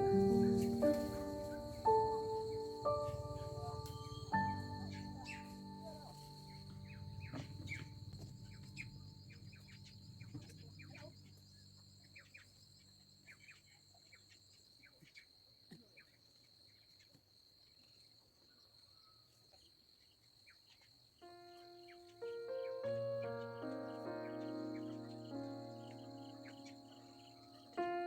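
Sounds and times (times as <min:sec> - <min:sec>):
background music: 0:00.0 - 0:10.4, 0:21.3 - 0:28.0
insect trill: 0:00.0 - 0:15.0, 0:21.1 - 0:28.0
bird chirps: 0:00.0 - 0:15.3, 0:20.5 - 0:28.0.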